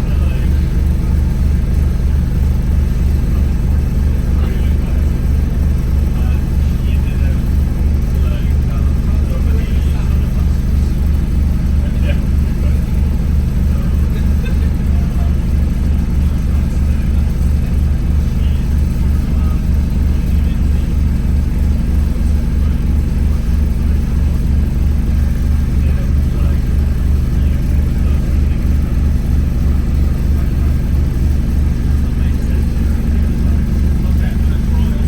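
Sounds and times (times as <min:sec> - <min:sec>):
bus engine throbbing: 0:00.0 - 0:35.0.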